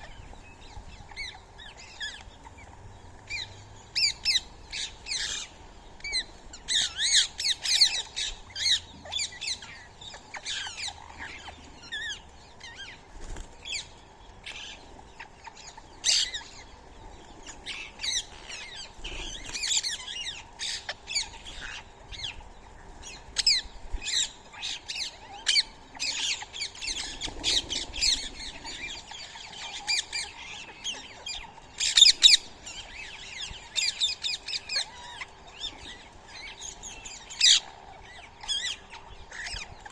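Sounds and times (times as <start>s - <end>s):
parrots squawking and chirping: 0.9s - 2.7s, 3.3s - 13.0s, 23.0s - 39.9s.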